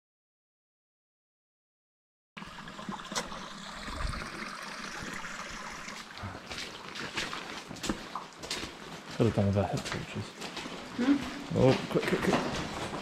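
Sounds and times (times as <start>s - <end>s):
water trickling: 2.4s - 9.7s.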